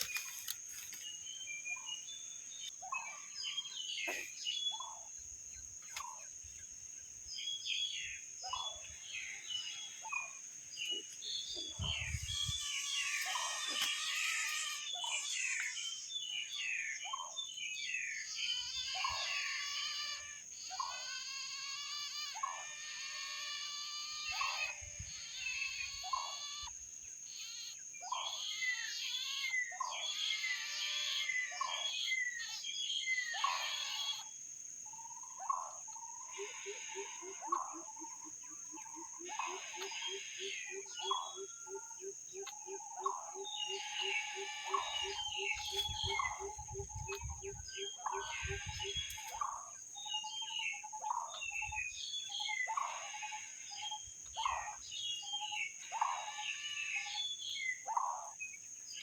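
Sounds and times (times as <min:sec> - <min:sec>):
high insect drone: 0:00.0 - 0:59.0
chicks begging calls: 0:42.4 - 0:49.6.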